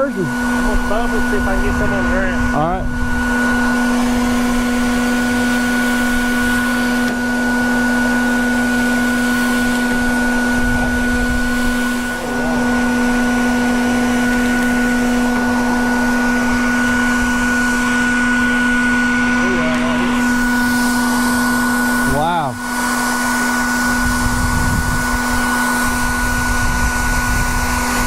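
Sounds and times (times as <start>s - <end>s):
vacuum motor humming: 0.0s - 28.0s.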